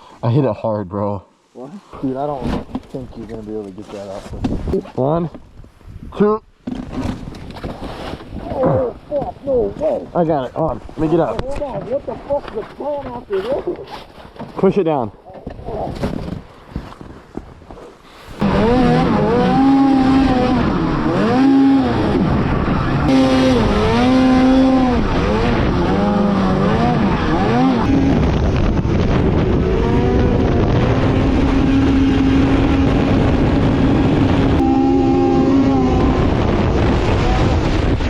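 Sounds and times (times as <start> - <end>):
snowmobile engine revving: 18.4 - 38.0.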